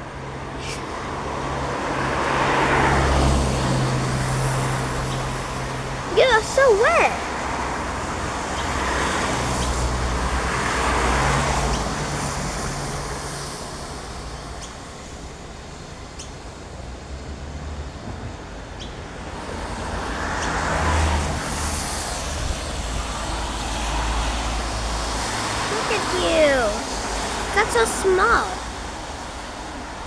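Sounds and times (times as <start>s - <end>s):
vehicles passing: 0.1s - 13.4s, 16.2s - 30.0s.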